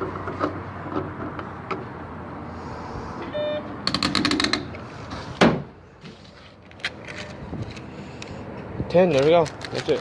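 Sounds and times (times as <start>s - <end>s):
short electronic beep: 3.3s - 3.7s.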